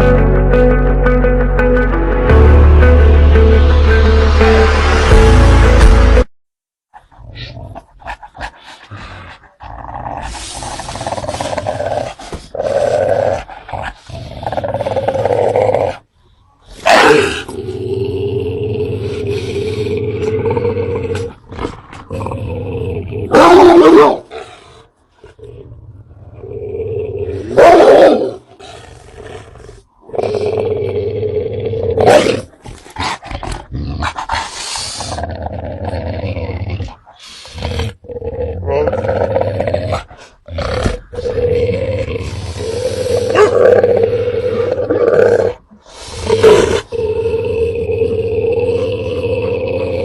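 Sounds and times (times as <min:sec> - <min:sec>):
dogs growling: 0:07.0 - 0:16.1, 0:16.7 - 0:50.0
dog roar falling in pitch: 0:38.2 - 0:50.0
dogs barking: 0:43.3 - 0:43.6.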